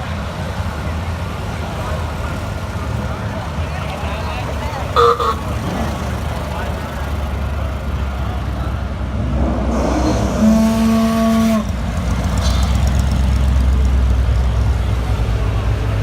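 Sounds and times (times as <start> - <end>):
car engines rumbling: 0.0 - 16.0
car horn blast: 5.0 - 5.7, 10.4 - 11.7.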